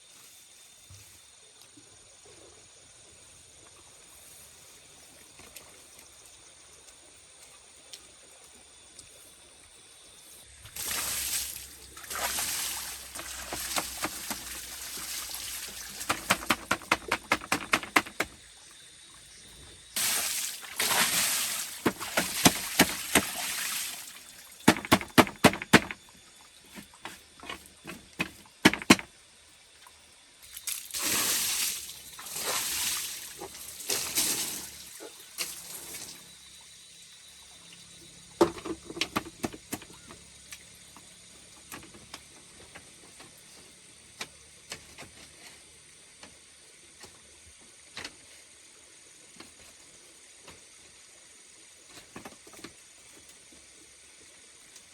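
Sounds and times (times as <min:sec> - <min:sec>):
water splashing and pouring: 0:10.6 - 0:18.1, 0:20.0 - 0:25.9, 0:30.5 - 0:36.2
sharp clattering knocks: 0:16.0 - 0:18.4, 0:24.6 - 0:26.0, 0:27.0 - 0:29.1.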